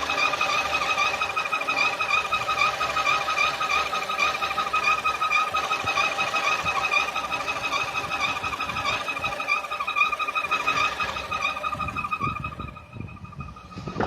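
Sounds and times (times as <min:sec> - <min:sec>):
car engine idling: 0:00.0 - 0:14.0
high wavering whistle: 0:00.0 - 0:14.0.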